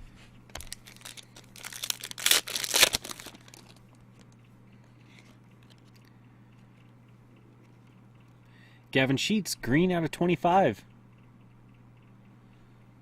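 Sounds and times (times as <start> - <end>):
faint steady hum: 0.0 - 13.0
plastic packaging crinkling: 0.5 - 4.3.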